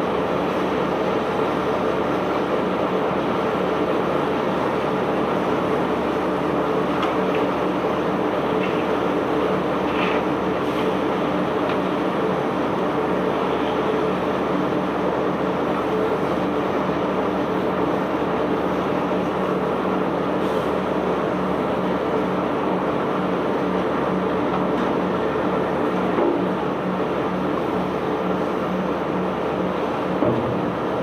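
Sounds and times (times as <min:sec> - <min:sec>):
noisy machinery rumble: 0:00.0 - 0:31.0.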